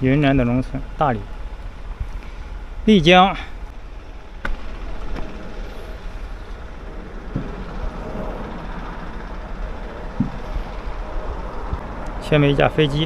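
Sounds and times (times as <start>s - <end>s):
bicycle tyres on road: 0.0s - 13.0s
short low knocks: 10.1s - 10.8s.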